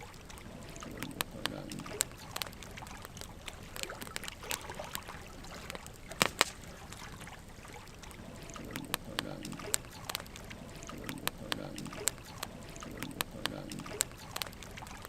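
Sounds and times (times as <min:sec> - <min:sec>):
soft steady hiss: 0:00.0 - 0:15.0
wood fire crackling: 0:00.0 - 0:15.0
sharp pops of fire: 0:05.7 - 0:07.0.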